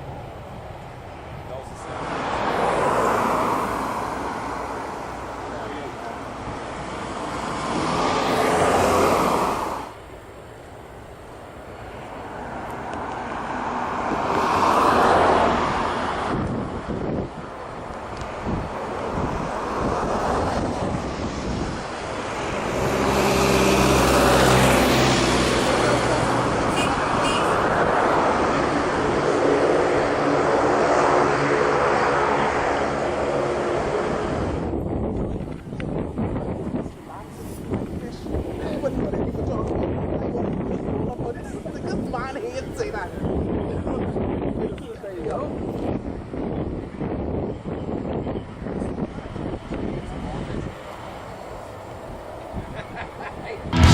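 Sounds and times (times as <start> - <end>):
jet aircraft passing: 0.0 - 34.7
airplane engine rushing: 0.0 - 35.2
wind buffeting microphone: 0.0 - 53.9.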